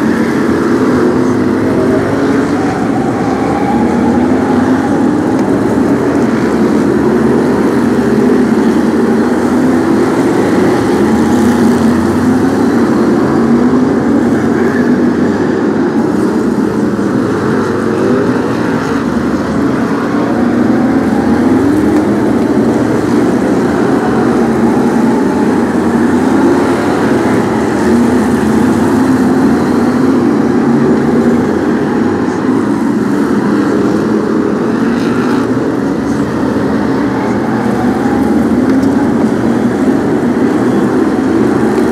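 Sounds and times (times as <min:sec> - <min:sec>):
racing car engines droning: 0:00.0 - 0:41.9.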